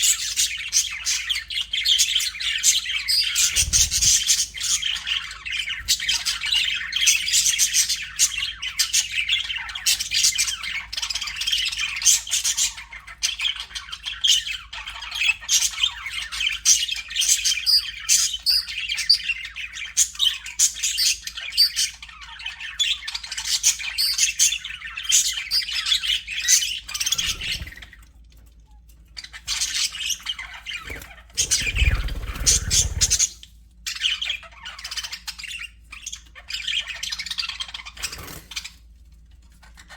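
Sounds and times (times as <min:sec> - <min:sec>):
budgerigars chattering and chirping: 0:00.0 - 0:28.1, 0:29.1 - 0:38.9, 0:39.5 - 0:39.9.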